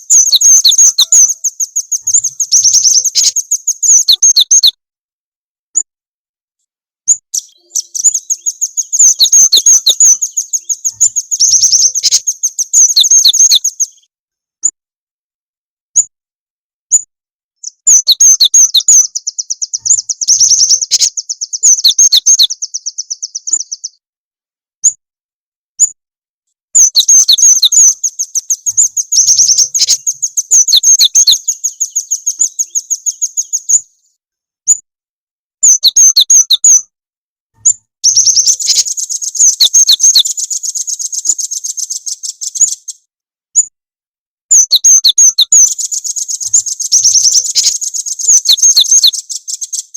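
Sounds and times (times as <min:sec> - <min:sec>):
songbirds trilling: 0:00.0 - 0:04.8, 0:07.1 - 0:14.1, 0:17.6 - 0:24.0, 0:26.8 - 0:34.2, 0:35.6 - 0:36.8, 0:37.6 - 0:43.0, 0:44.5 - 0:49.9.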